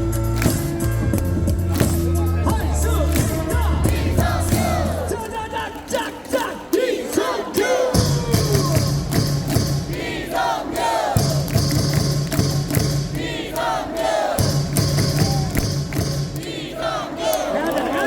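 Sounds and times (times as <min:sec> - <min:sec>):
cheering song over loudspeakers: 0:00.0 - 0:18.0
crowd singing along: 0:02.5 - 0:11.6, 0:12.5 - 0:15.5, 0:16.2 - 0:18.0.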